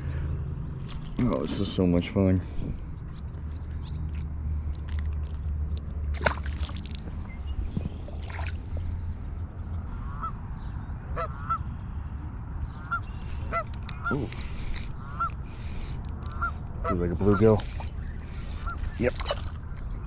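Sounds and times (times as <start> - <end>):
low steady rumble: 0.0 - 18.8
geese honking: 9.9 - 10.4, 11.1 - 11.7, 12.8 - 14.3, 14.9 - 19.5.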